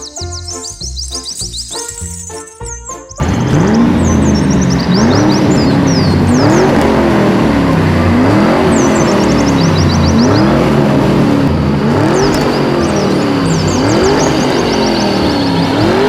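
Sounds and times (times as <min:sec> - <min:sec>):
car engine revving: 0:03.2 - 0:16.0.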